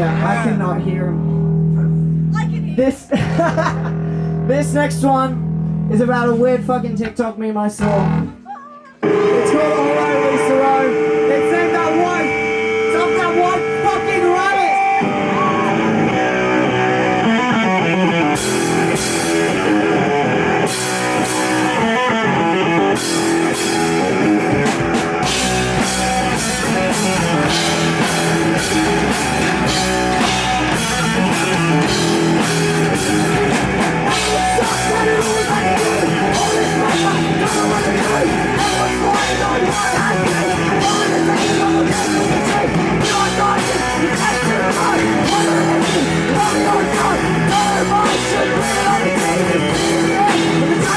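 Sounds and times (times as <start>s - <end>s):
electric guitar: 9.0s - 50.9s
drum kit with cymbals: 18.3s - 50.9s.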